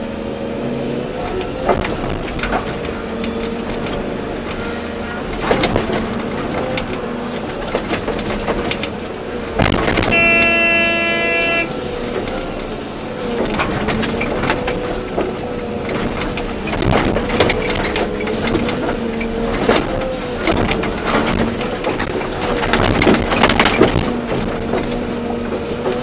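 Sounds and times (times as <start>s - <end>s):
excavator engine and hydraulics: 0.0s - 26.0s
horn: 10.0s - 12.0s.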